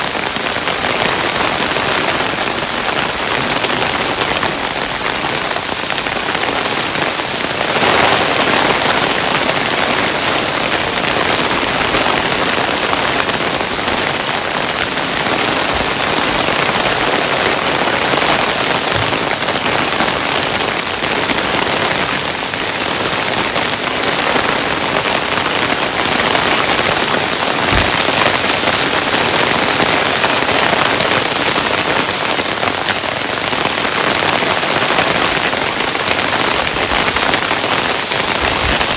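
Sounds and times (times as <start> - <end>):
hail striking a surface: 0.0 - 38.9
low thumps: 27.6 - 28.4.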